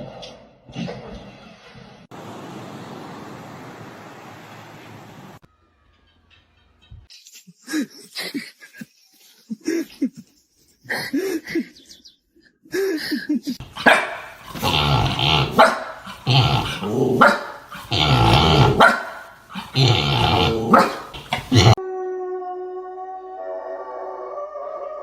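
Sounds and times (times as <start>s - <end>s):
dog growling and barking: 13.6s - 21.8s.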